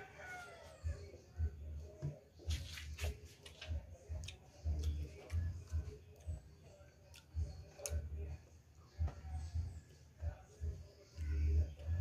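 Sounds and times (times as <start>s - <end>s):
person chewing and smacking: 2.6s - 8.3s.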